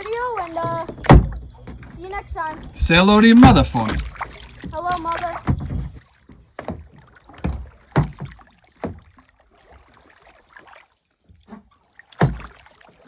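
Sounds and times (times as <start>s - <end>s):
paddle knocking against kayak hull: 2.8s - 9.2s.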